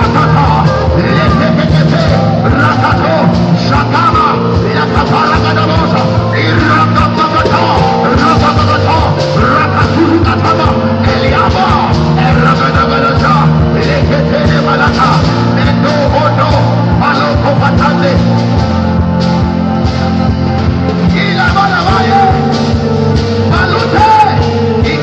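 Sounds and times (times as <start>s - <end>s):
drums: 0.0s - 25.0s
live worship band music: 0.0s - 25.0s.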